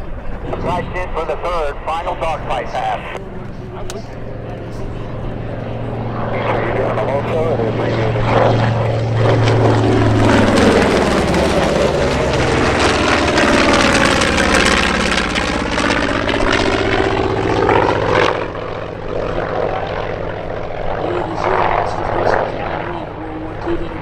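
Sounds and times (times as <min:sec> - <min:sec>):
propeller planes passing overhead: 0:00.0 - 0:24.0.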